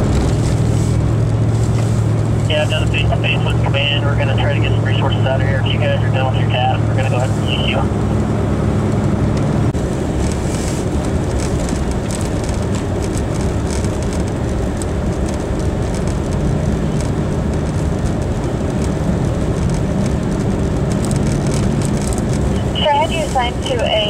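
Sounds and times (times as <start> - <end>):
steady hum: 0.0 - 13.6, 22.2 - 24.0
low rumbling vehicle noise: 0.0 - 24.0.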